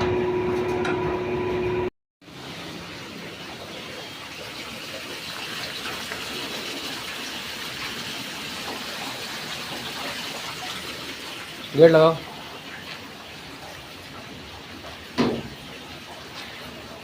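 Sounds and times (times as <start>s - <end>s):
running water gushing: 2.2s - 17.0s.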